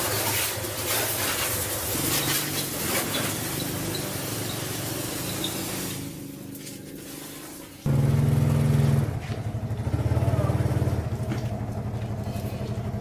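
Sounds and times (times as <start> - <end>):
small motorbike engine running: 0.1 - 13.0
loud hiss: 0.6 - 6.2.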